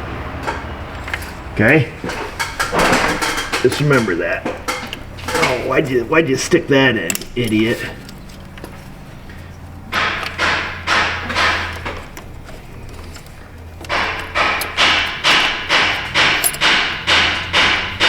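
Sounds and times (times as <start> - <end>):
sharp ringing knocks: 9.9 - 12.1, 13.8 - 18.0.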